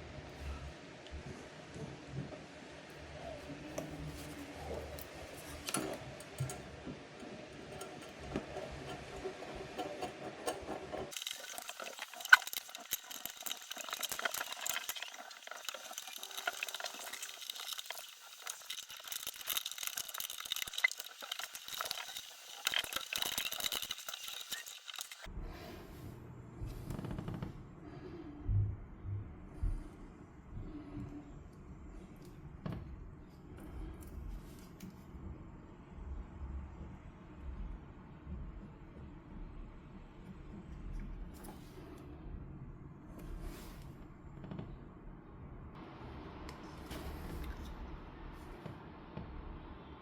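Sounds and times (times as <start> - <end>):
small hard objects clinking: 11.1 - 25.3.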